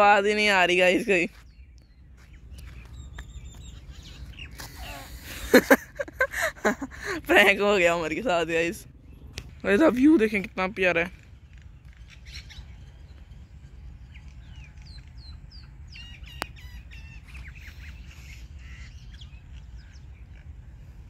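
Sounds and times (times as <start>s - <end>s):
birds chirping: 0.0s - 21.0s
steady low rumble: 0.0s - 21.0s
birds squawking: 14.4s - 20.6s.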